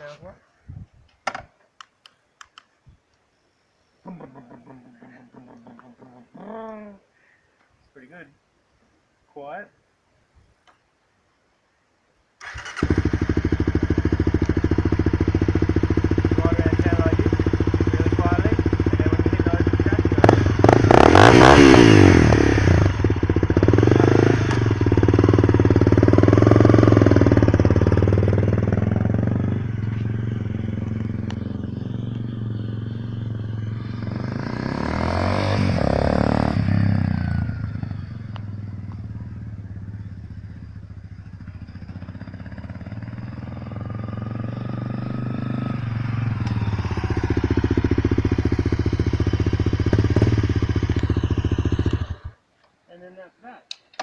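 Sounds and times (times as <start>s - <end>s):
motorcycle engine revving: 12.4s - 52.4s.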